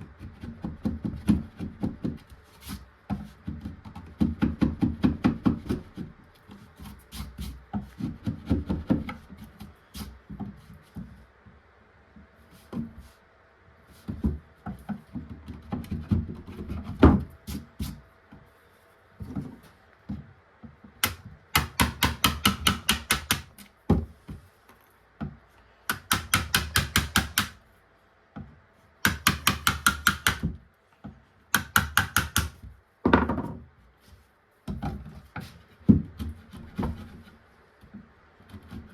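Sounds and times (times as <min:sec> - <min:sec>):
knocks and clunks on wood: 0:14.0 - 0:17.3, 0:19.2 - 0:24.5, 0:25.2 - 0:27.5, 0:28.4 - 0:33.7, 0:34.7 - 0:37.1.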